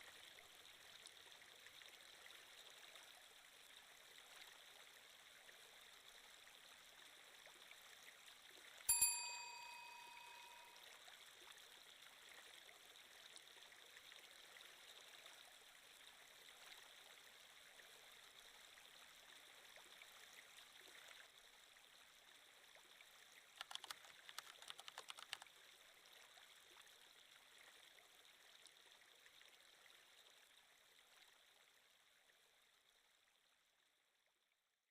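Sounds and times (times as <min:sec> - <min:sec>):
gently running stream: 0:00.0 - 0:33.9
chime: 0:08.9 - 0:10.8
sharp clicks: 0:23.6 - 0:25.4.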